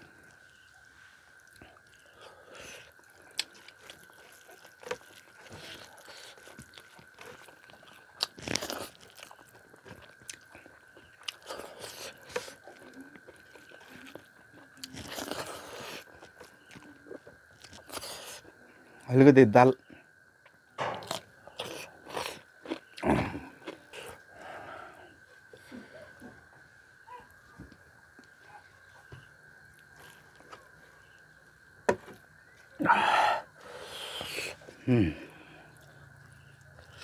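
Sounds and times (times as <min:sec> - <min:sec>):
wet chewing and smacking: 0:01.4 - 0:18.6, 0:20.4 - 0:24.4, 0:27.2 - 0:32.8, 0:35.6 - 0:37.0.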